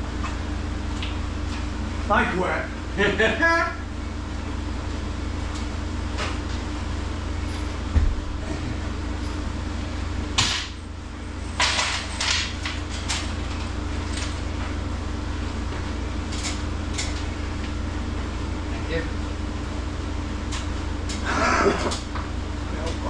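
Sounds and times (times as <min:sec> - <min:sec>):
low machine hum: 0:00.0 - 0:23.0
low thump: 0:07.9 - 0:08.3
tools and hardware clattering: 0:11.6 - 0:14.3.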